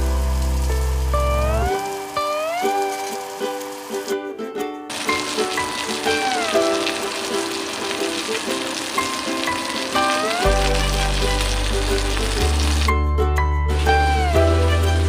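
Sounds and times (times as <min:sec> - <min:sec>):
background music with bass: 0:00.0 - 0:01.9, 0:10.4 - 0:15.0
fish fillet sizzling in oil: 0:00.0 - 0:04.1, 0:04.9 - 0:13.0.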